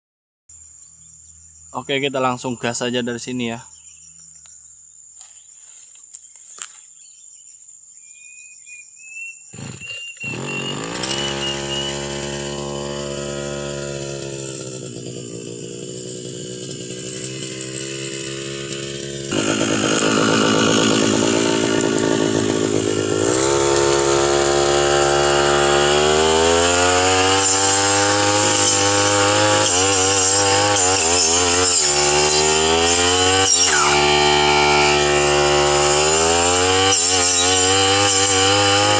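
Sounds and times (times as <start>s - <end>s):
brush cutter engine: 5.2s - 6.8s, 9.5s - 38.9s.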